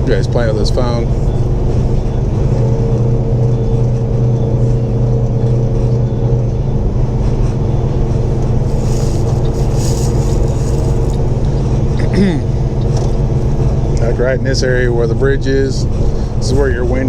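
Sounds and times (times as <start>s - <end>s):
road noise: 8.2s - 12.0s
brief hiss: 8.7s - 11.2s.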